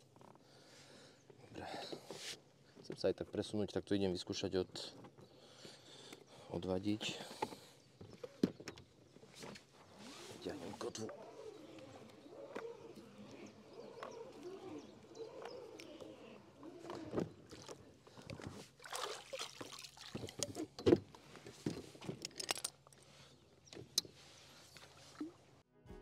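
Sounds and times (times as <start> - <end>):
water splashing: 17.4 - 20.6.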